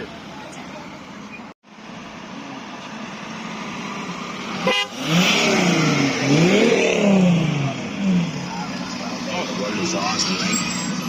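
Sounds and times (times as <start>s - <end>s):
car engine revving: 2.6s - 11.0s.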